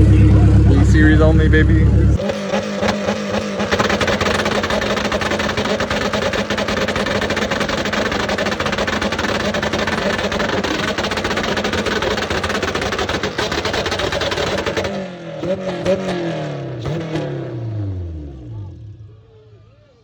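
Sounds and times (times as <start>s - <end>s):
car engine at high revs: 0.0s - 19.4s
dense rapid crackle: 2.1s - 15.0s.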